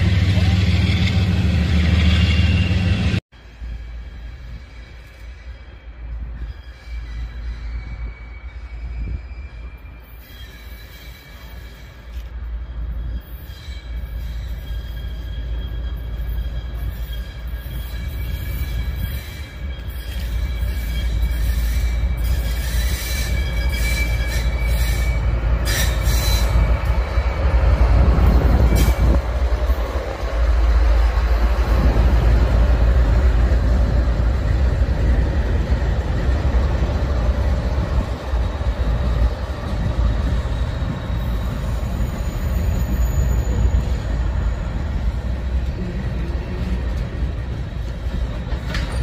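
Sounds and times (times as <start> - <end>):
diesel locomotive engines: 0.0 - 49.0
freight cars rumbling and clacking: 23.3 - 49.0.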